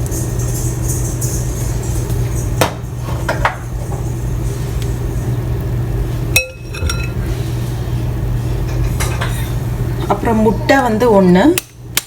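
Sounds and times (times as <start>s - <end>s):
steady low hum: 0.0s - 12.0s
utensil clinking against bowl: 6.4s - 7.3s.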